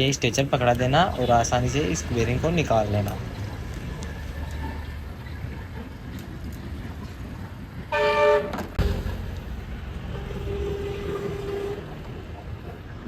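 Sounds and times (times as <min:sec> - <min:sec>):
loud horn-like tone: 0:07.9 - 0:08.6, 0:10.2 - 0:12.1.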